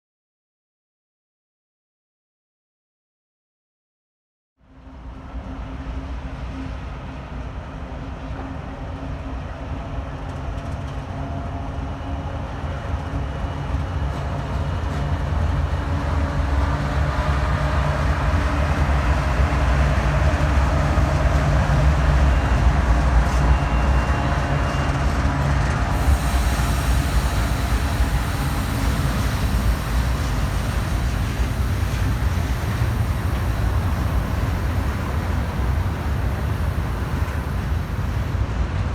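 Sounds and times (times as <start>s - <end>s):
diesel train rumble: 5.2s - 38.9s
hiss: 16.6s - 25.0s, 25.9s - 38.5s.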